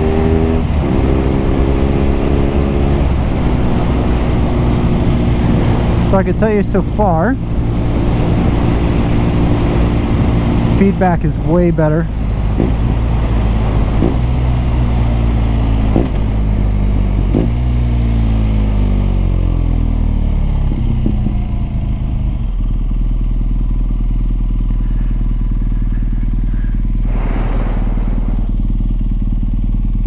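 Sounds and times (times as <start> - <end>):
motorcycle engine and exhaust: 0.0 - 30.0
rush of hiss: 27.0 - 28.6.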